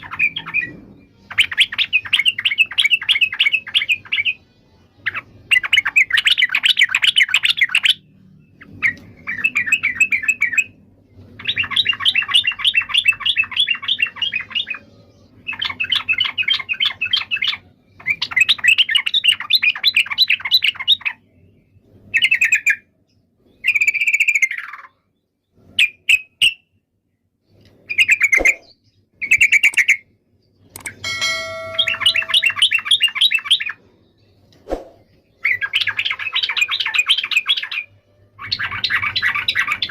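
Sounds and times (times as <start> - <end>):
bulbul singing: 30.6 - 33.7.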